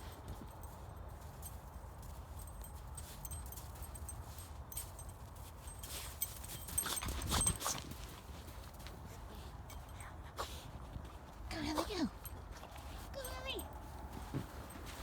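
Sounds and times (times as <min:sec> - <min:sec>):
footsteps crunching in snow: 0:13.9 - 0:15.0.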